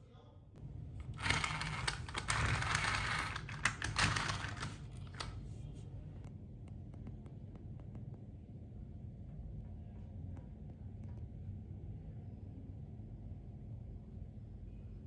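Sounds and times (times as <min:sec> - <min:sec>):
plastic toy parts clicking: 0:01.2 - 0:05.4.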